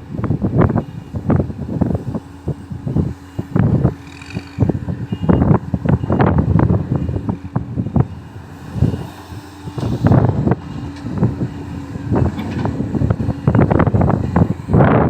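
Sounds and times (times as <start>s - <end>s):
diesel engine running: 0.0s - 15.0s
wind buffeting microphone: 0.0s - 15.0s.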